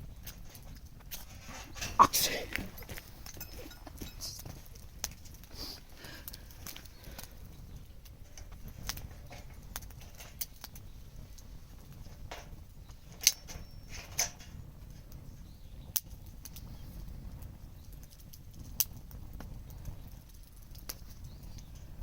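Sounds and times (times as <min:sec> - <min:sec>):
bonfire crackling: 0:00.0 - 0:22.0.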